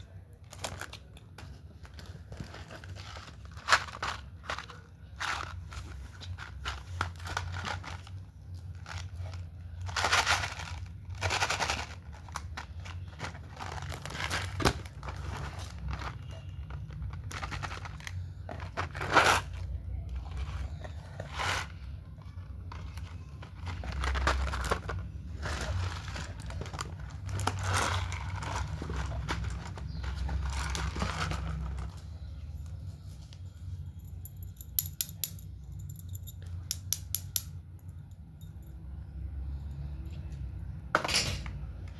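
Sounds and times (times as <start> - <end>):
plastic packaging crinkling and tearing: 0.0 - 32.3.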